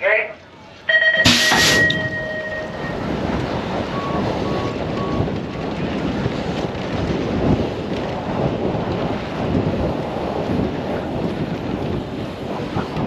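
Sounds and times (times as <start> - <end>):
short beeps: 0.9 - 3.2, 3.9 - 5.2
wind rush on microphone: 1.6 - 13.0.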